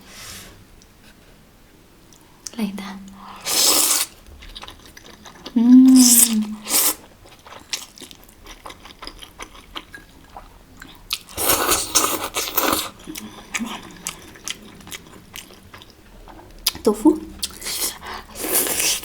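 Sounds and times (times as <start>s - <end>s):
person chewing noodles: 3.4s - 16.8s, 17.4s - 19.0s.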